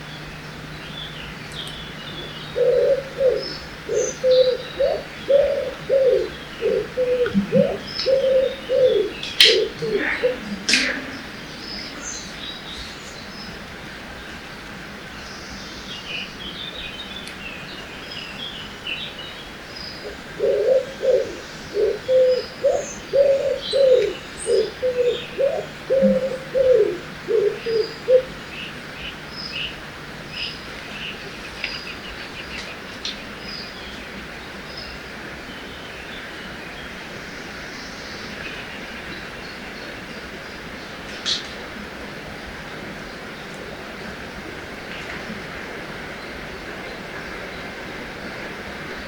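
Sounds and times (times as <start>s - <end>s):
small birds chirping: 0.0s - 41.6s
bird cooing calls: 1.2s - 13.5s, 20.0s - 29.2s.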